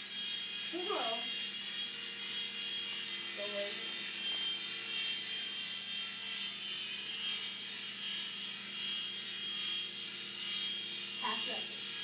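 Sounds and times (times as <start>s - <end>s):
toy helicopter whirring: 0.0s - 12.0s.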